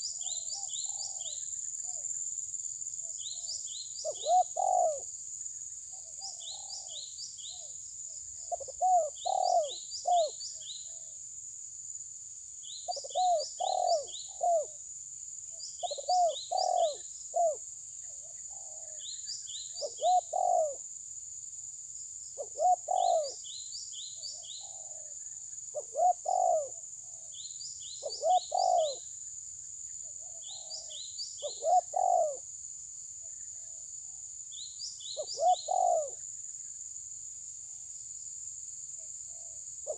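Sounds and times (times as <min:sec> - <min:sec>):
bird cooing: 0:00.0 - 0:02.2, 0:03.1 - 0:05.1, 0:05.9 - 0:07.8, 0:08.4 - 0:11.2, 0:12.8 - 0:14.8, 0:15.8 - 0:20.8, 0:22.4 - 0:23.6, 0:24.2 - 0:29.1, 0:30.0 - 0:32.5, 0:33.2 - 0:34.2, 0:35.0 - 0:36.2, 0:39.3 - 0:39.9.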